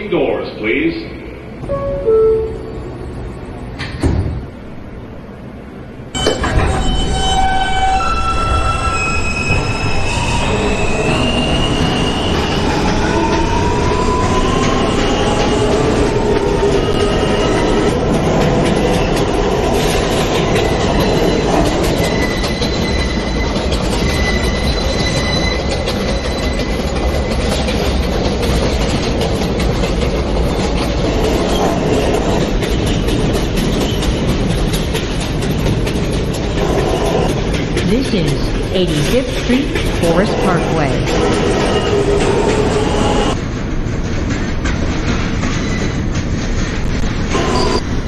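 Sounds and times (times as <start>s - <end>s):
subway train wheels rumbling on rail: 0.0s - 48.0s
high wheel squeal: 6.2s - 18.1s, 20.4s - 27.7s.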